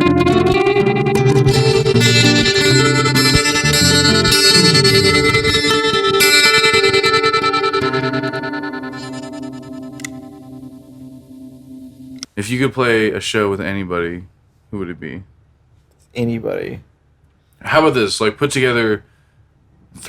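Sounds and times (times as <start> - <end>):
guitar plucked and strummed: 0.0 - 12.2.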